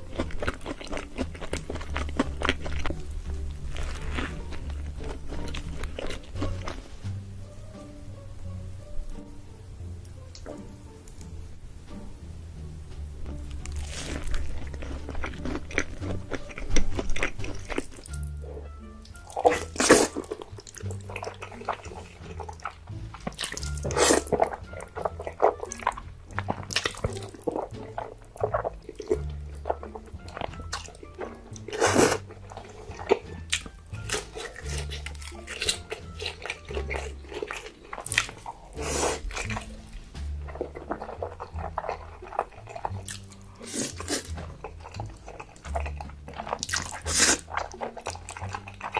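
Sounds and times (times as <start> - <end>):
crunchy bites and chewing: 0.0 - 6.9, 13.5 - 48.9
background music with bass: 0.0 - 48.9.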